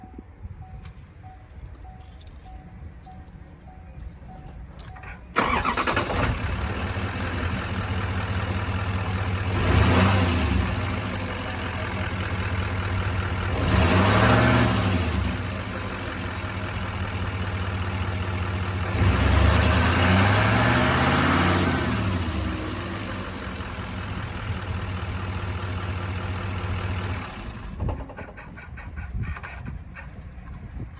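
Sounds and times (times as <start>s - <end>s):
pickup engine starting and idling: 4.8s - 30.6s
engine revving: 5.4s - 16.3s, 17.7s - 24.2s.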